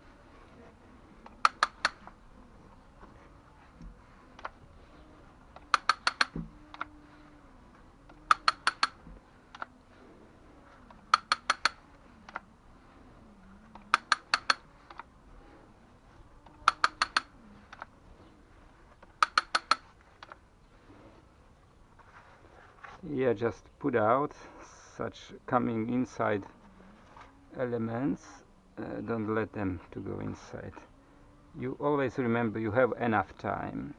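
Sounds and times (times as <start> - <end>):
ratchet tool clicking: 5.6 - 6.4, 8.2 - 9.0, 11.1 - 11.8, 13.8 - 15.0, 16.6 - 17.3, 19.2 - 19.9.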